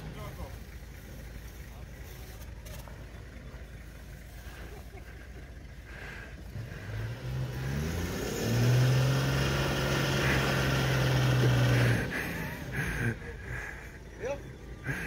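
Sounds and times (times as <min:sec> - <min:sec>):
vehicle engine revving hard: 0:05.9 - 0:13.9.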